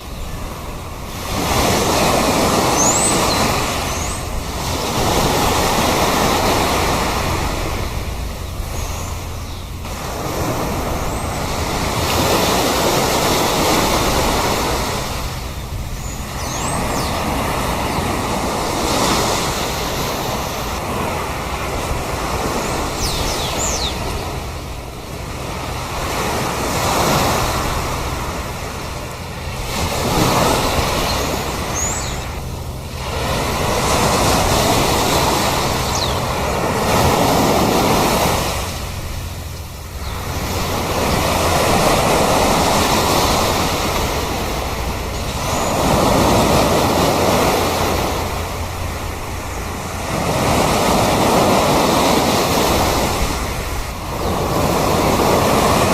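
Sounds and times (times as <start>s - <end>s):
high bird calls: 0.0s - 13.8s, 14.4s - 20.8s, 22.3s - 25.1s, 28.9s - 48.8s
sea waves washing onto shore: 0.0s - 55.9s.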